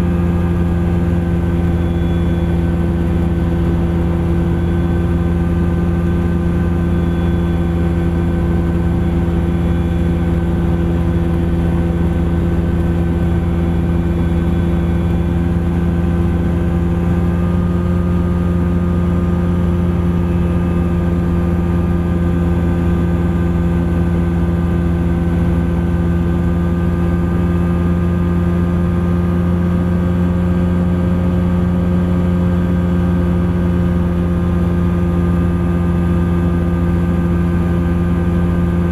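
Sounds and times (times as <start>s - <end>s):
light aircraft engine running: 0.0s - 38.9s.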